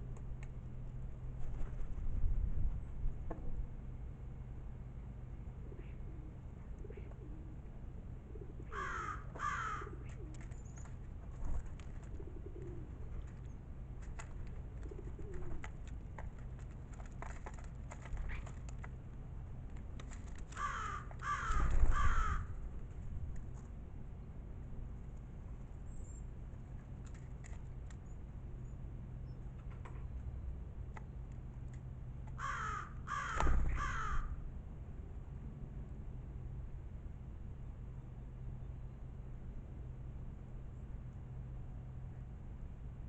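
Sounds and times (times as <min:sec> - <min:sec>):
crow cawing: 0:08.7 - 0:10.0, 0:20.6 - 0:22.6, 0:32.4 - 0:34.4.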